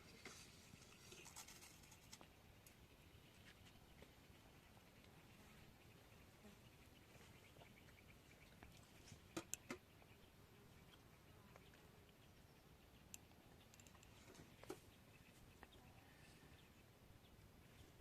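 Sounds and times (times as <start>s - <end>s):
faint sharp clicks: 8.6s - 9.8s, 13.0s - 14.8s.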